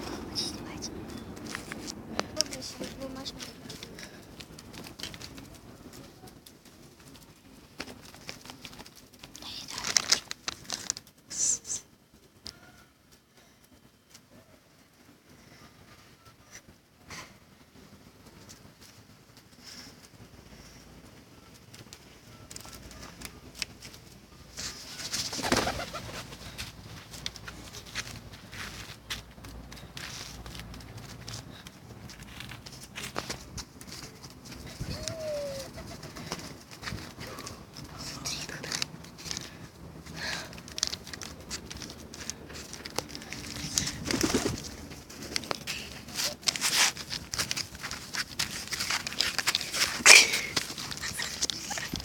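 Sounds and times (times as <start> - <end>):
wings flapping: 2.4 - 11.5, 18.4 - 52.0
pigeons cooing: 34.8 - 36.4.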